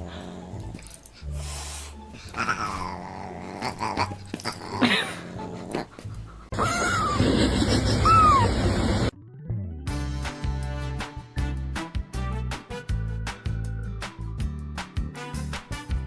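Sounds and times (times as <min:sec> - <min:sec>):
background music: 0:00.0 - 0:07.2, 0:09.1 - 0:16.0
dog vocalising: 0:02.2 - 0:06.6.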